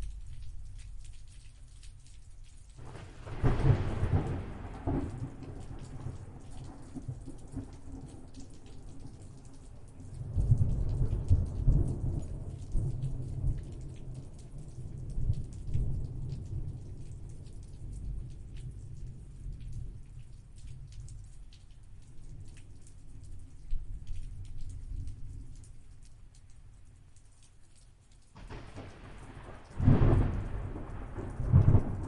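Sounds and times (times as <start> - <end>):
raindrops ticking: 0.0 - 32.0
steady rain: 0.0 - 32.0
thunder rumbling: 2.8 - 9.3, 10.2 - 13.8, 28.4 - 32.0.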